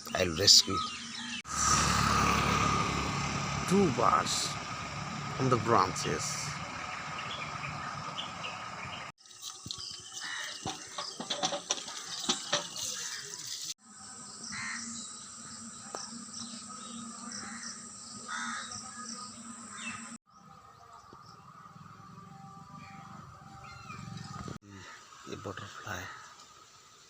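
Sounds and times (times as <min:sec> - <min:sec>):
birds calling: 0:00.0 - 0:13.7, 0:14.4 - 0:26.4
sharp clicks and knocks: 0:10.6 - 0:12.9.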